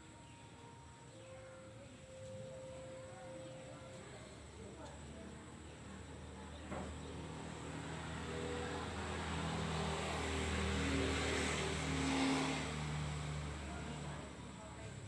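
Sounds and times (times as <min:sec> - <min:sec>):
vehicle engine passing by: 0:06.2 - 0:15.0.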